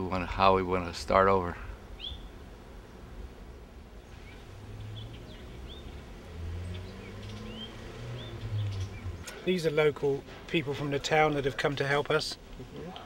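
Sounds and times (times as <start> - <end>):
small birds chirping: 1.8 - 9.8.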